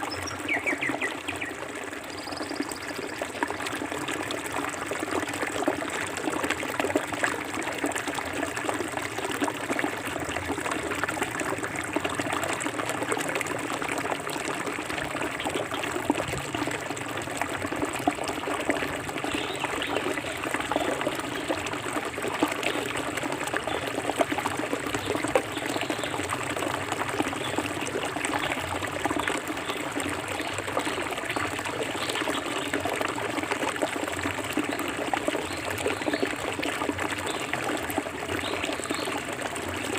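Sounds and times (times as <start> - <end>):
small splashes and trickles: 0.0 - 39.9.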